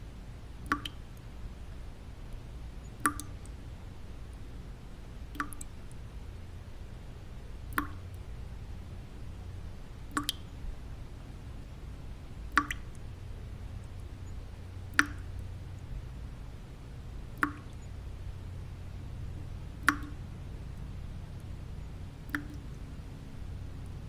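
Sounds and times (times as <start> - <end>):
low white noise: 0.0 - 24.0
water drops plinking: 0.6 - 1.0, 3.0 - 3.4, 5.3 - 5.7, 7.7 - 8.2, 10.1 - 10.6, 12.5 - 13.1, 13.9 - 15.5, 17.4 - 17.9, 19.8 - 20.2, 21.4 - 22.8.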